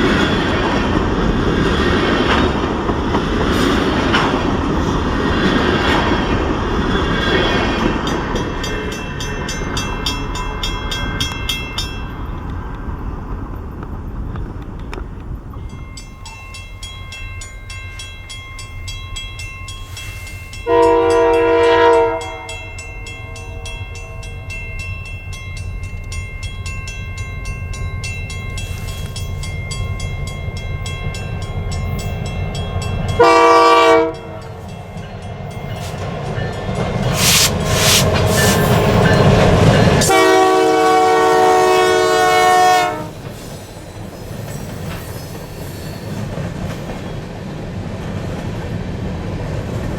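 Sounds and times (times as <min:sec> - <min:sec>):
train rumble and wheel noise: 0:00.0 - 0:49.9
locomotive air horn blasts: 0:20.6 - 0:22.6, 0:33.2 - 0:34.2, 0:40.0 - 0:43.2.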